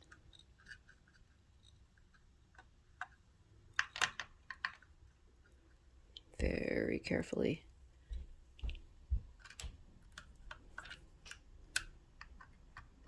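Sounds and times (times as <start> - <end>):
small metal parts clicking: 0.0 - 5.6, 9.4 - 12.9.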